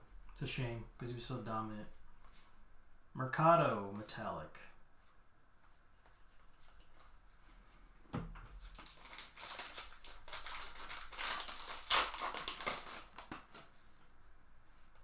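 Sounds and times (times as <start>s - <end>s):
wrapper tearing open: 8.6s - 13.7s
wrapper crinkling: 8.6s - 13.8s.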